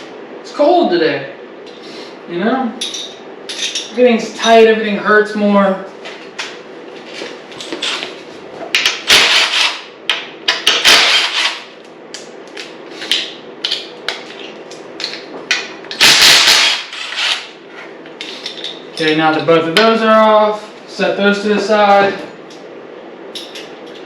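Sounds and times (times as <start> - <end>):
metal tools clinking and rattling: 2.8 - 4.6, 23.4 - 24.0.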